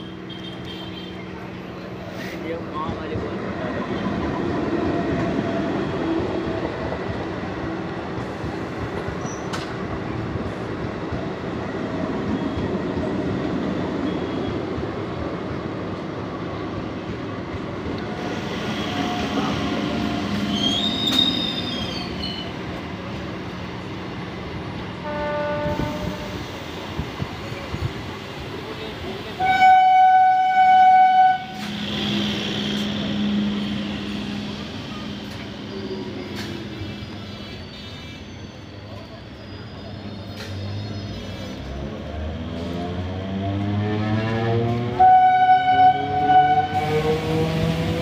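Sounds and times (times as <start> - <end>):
train wheels rumbling on rails: 0.0 - 48.0
high wheel squeal: 20.3 - 22.6, 31.6 - 41.7
two-tone train horn: 25.0 - 26.5, 29.4 - 31.7, 44.9 - 47.1.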